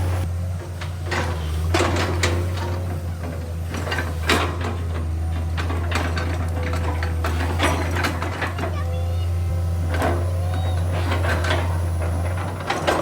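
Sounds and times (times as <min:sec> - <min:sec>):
excavator diesel engine drone: 0:00.0 - 0:13.0
metallic clanks and knocks: 0:00.7 - 0:08.8.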